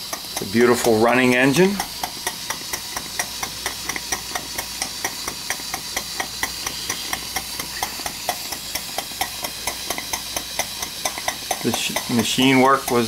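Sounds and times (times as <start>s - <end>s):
steam engine clicking: 0.0s - 13.0s
steam hiss: 0.0s - 13.0s.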